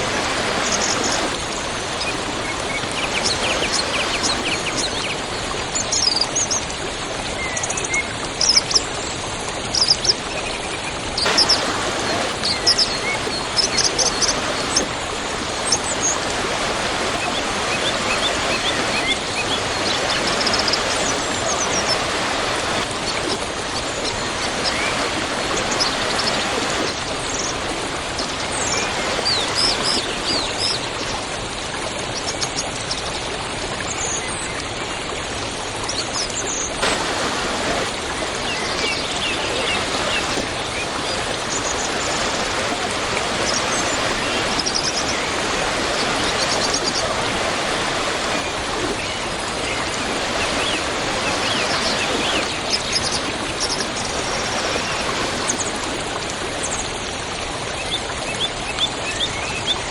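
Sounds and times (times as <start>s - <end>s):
small birds chirping: 0.0s - 6.6s, 11.2s - 31.0s, 35.9s - 56.0s
waterfall roaring: 0.0s - 10.4s, 11.1s - 31.7s, 35.8s - 57.9s.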